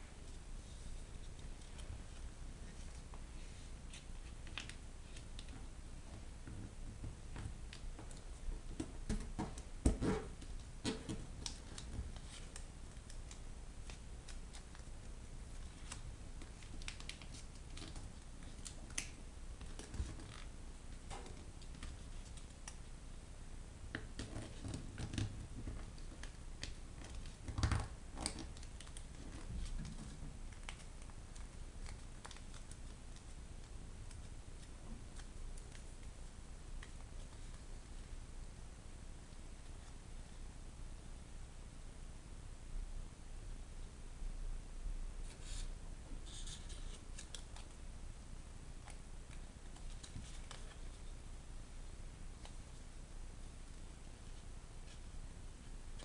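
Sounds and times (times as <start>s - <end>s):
paper being folded and creased: 15.5s - 20.5s, 24.2s - 36.0s, 46.3s - 47.8s, 48.8s - 51.1s.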